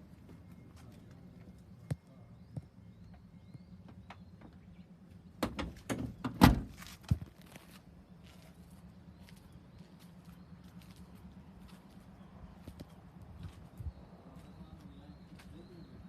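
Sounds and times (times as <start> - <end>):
clunks and knocks: 5.4 - 7.3
faint bird chirps: 8.2 - 16.0.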